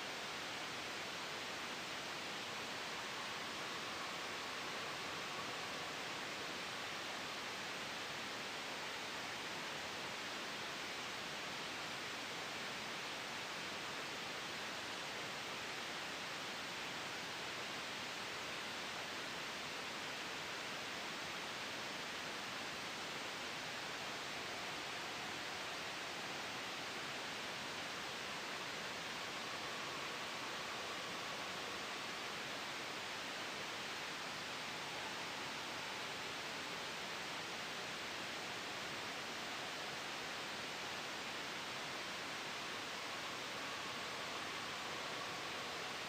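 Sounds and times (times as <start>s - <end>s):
gentle wind hiss: 0.0s - 46.0s
white noise: 0.0s - 46.0s.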